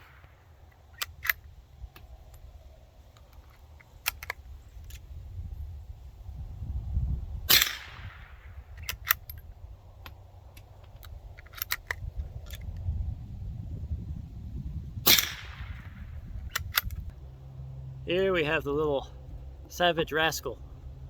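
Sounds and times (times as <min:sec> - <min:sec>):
rifle shot with echo: 0:07.5 - 0:09.0, 0:15.0 - 0:16.3
low rumble: 0:12.0 - 0:19.7.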